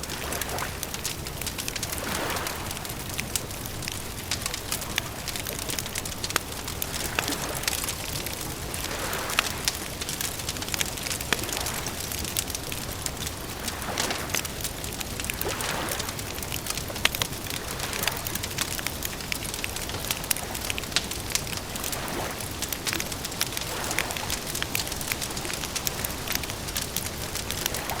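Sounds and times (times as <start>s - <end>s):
campfire crackling and popping: 0.0s - 28.0s.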